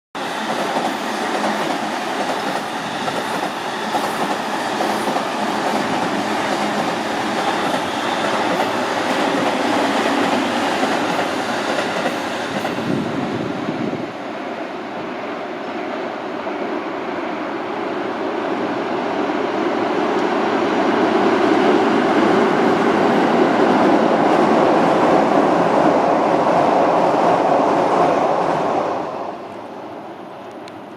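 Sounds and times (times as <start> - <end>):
train wheels rumbling on rails: 0.2 - 16.7.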